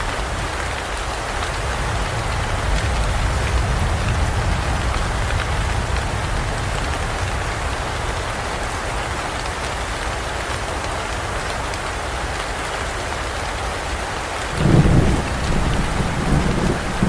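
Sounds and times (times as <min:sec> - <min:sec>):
heavy rain on foliage: 0:00.0 - 0:17.0
thunder rumble: 0:14.6 - 0:17.0.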